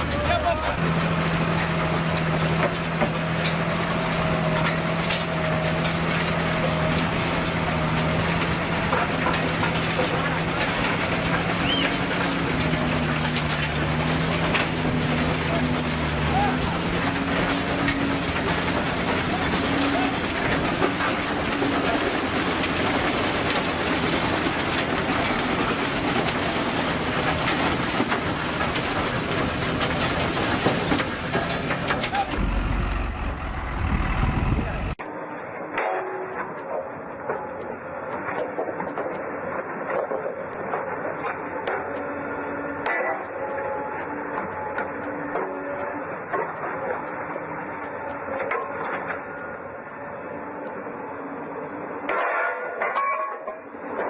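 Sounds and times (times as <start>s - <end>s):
machine engine humming: 0.0s - 35.0s.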